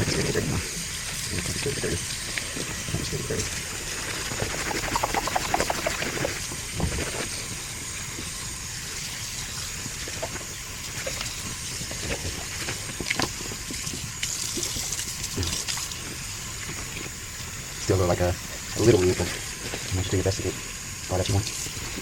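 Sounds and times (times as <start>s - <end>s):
water running and splashing: 0.1s - 17.6s.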